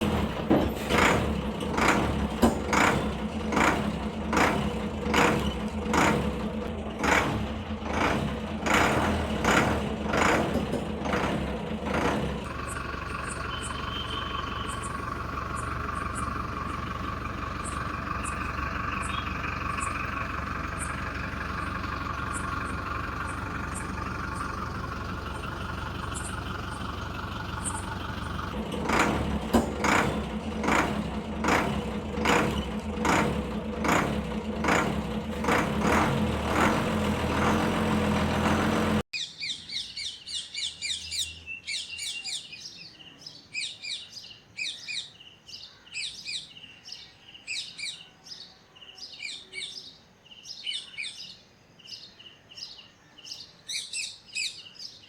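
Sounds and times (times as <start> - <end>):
vehicle engine running: 0.0 - 39.1.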